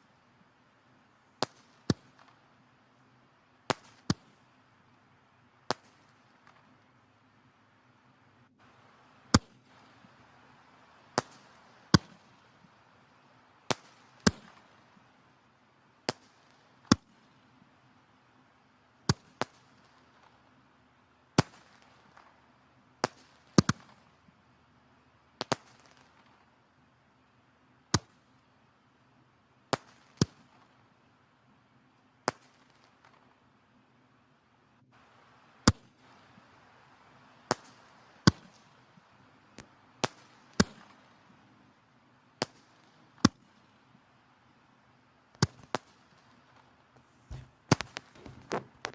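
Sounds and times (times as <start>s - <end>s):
faint hiss of flames: 0.0s - 48.9s
logs crackling and popping: 8.6s - 12.8s, 23.0s - 24.3s, 25.4s - 26.6s, 34.9s - 41.7s, 45.3s - 48.9s.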